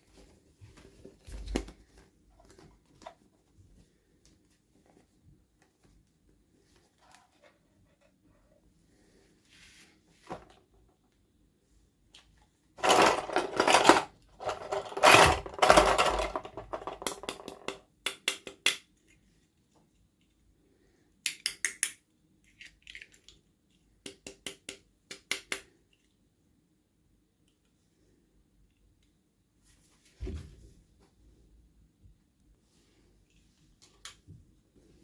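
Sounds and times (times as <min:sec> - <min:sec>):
plastic packaging rustling: 0:12.8 - 0:16.9.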